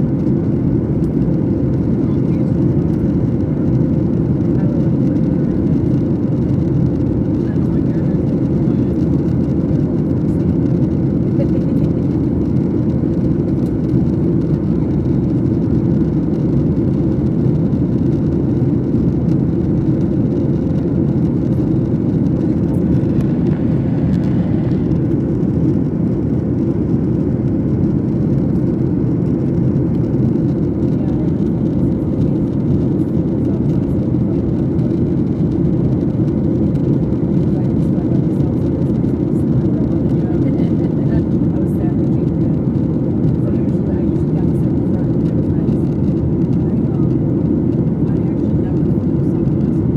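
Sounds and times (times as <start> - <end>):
jet airliner roar: 0.0 - 49.9.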